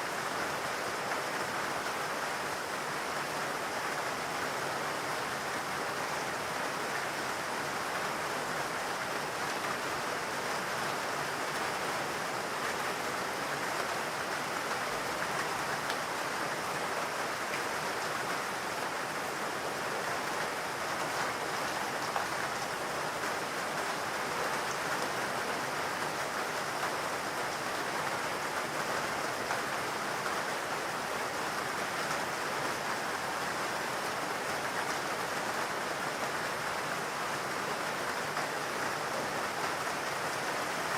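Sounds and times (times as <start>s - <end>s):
rain falling in a forest: 0.0s - 40.9s.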